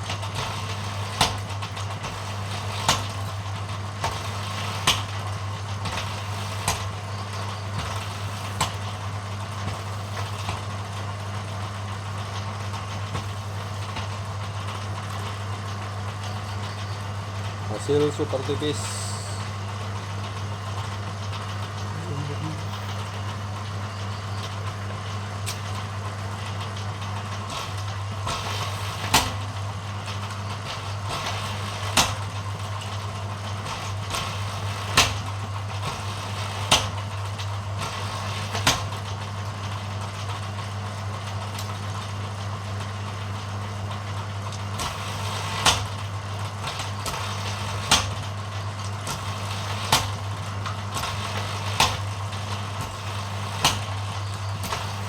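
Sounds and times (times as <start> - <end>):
machine humming: 12.0 - 26.0, 46.7 - 55.0.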